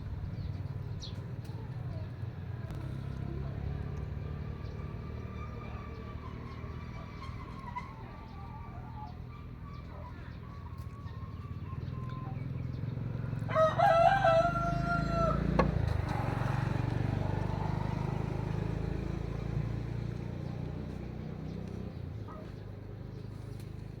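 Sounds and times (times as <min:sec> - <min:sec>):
rooster crowing: 0:13.5 - 0:16.7.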